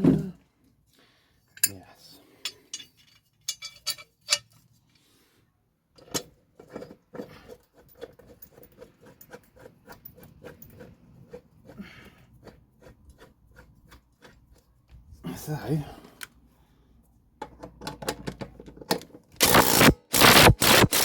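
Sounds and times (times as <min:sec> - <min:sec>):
metallic clicks and knocks: 0:02.4 - 0:04.6.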